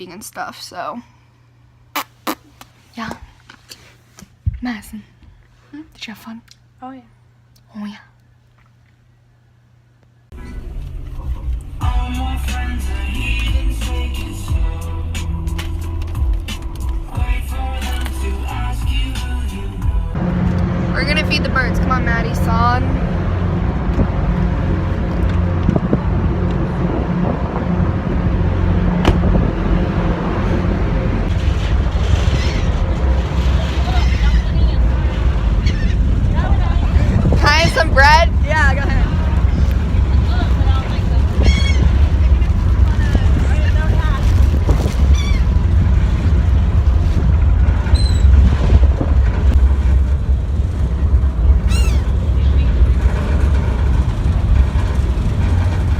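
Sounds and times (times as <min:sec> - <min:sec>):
low engine drone: 0:04.9 - 0:55.9
wind buffeting microphone: 0:20.2 - 0:55.9
high bird calls: 0:41.4 - 0:42.0, 0:45.1 - 0:45.5, 0:51.6 - 0:52.6.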